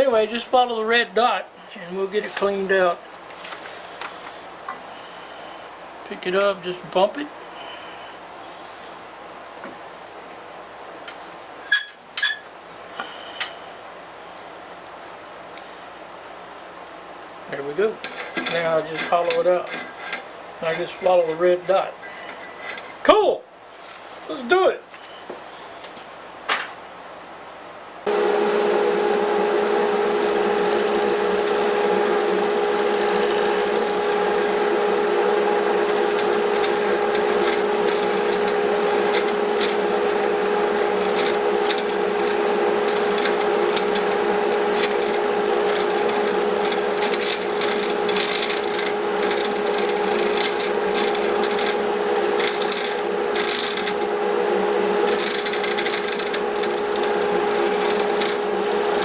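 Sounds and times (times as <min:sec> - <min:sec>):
lathe motor humming: 0:28.1 - 0:59.0
tool scraping wood: 0:28.1 - 0:59.0.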